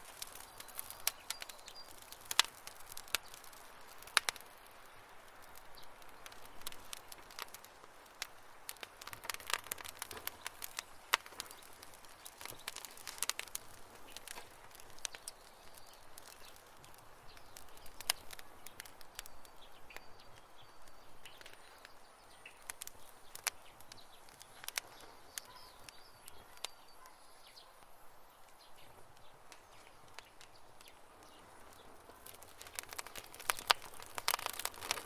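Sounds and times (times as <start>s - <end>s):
campfire crackling: 0.0s - 35.0s
faint high chirps: 17.3s - 34.7s.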